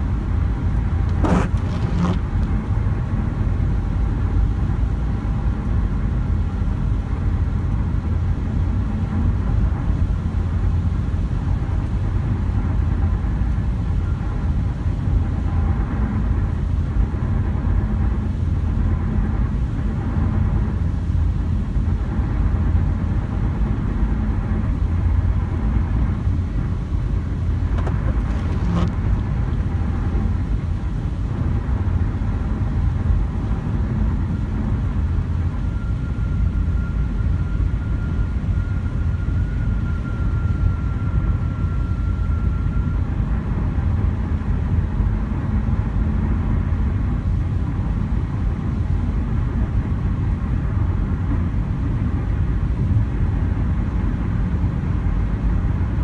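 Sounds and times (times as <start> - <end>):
vehicle running rumble: 0.0 - 56.0
faint steady high tone: 35.4 - 43.3.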